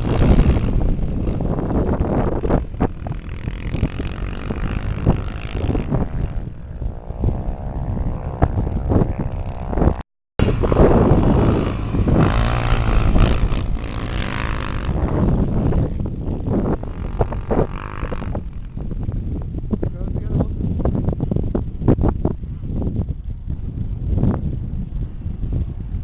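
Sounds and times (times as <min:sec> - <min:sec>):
race engines revving: 0:10.4 - 0:18.2.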